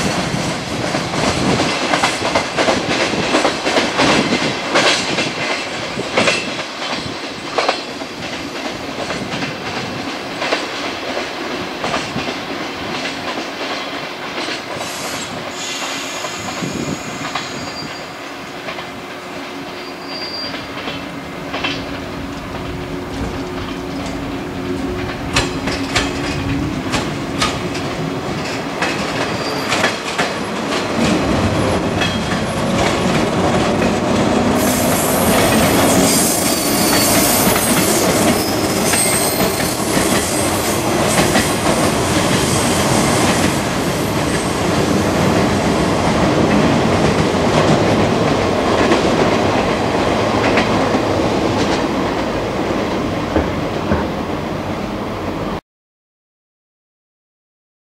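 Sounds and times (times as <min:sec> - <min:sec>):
train wheels clacking over joints: 0:00.0 - 0:18.0, 0:19.7 - 0:54.1
high-pitched wheel squeal: 0:14.9 - 0:18.2, 0:19.8 - 0:20.7, 0:29.3 - 0:29.8, 0:35.9 - 0:40.5.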